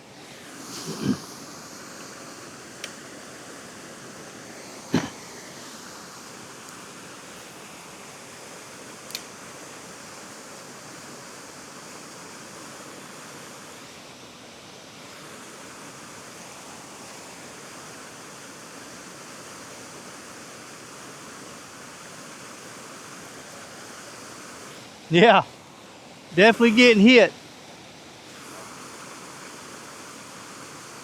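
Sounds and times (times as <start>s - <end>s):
flowing river water: 0.0s - 31.0s.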